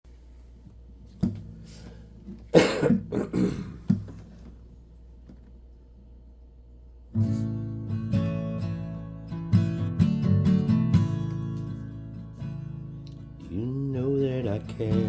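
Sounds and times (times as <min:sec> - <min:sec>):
acoustic guitar strumming: 0:07.2 - 0:15.0.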